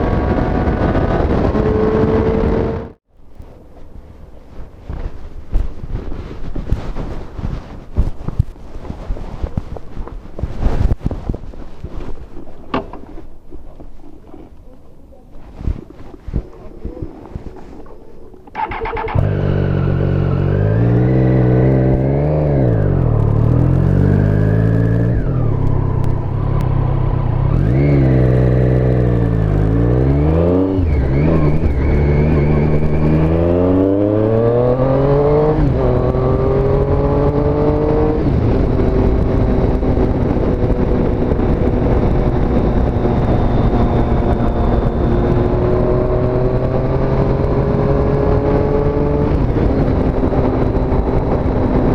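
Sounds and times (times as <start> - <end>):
motorcycle engine revving: 0.0 - 3.1, 18.5 - 51.9.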